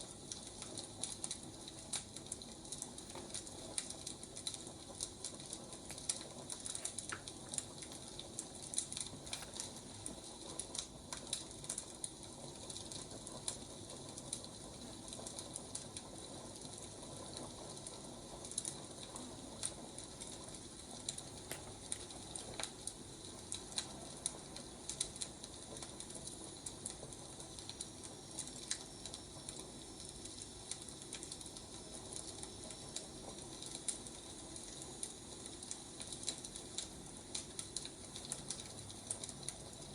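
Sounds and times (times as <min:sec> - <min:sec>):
soft hiss: 0:00.0 - 0:16.3
fire pops and snaps: 0:00.0 - 0:39.9
wood fire crackling: 0:00.0 - 0:39.9.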